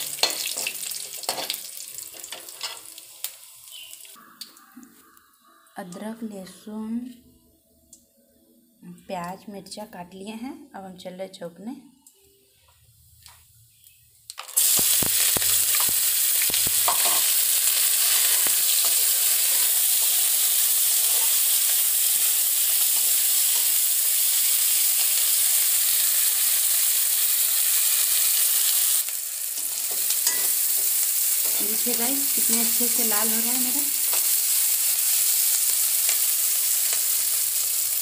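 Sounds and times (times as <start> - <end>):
food sizzling in hot oil: 0.0 - 4.7, 13.9 - 38.0.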